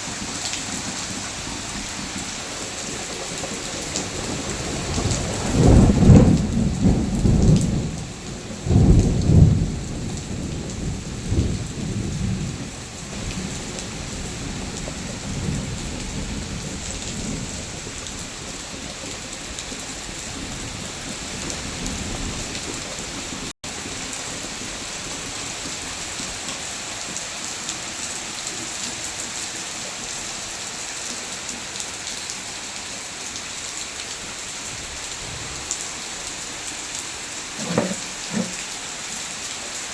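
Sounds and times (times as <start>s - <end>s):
steady rain falling: 0.0s - 39.9s
thunder rumbling: 4.7s - 17.7s, 34.7s - 38.7s.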